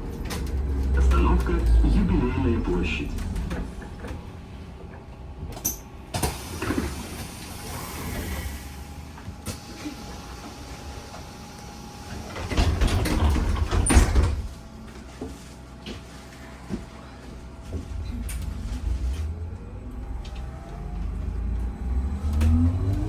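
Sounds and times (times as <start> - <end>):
bus doors clicking and knocking: 0.0 - 1.9, 2.9 - 7.6, 12.1 - 14.6
steady rumble: 0.0 - 6.2, 16.3 - 23.0.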